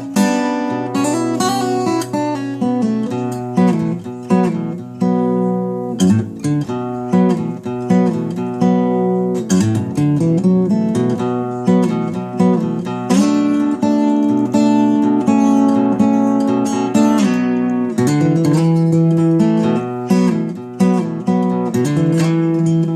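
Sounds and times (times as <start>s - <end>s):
fingerpicked acoustic guitar: 0.0s - 22.9s.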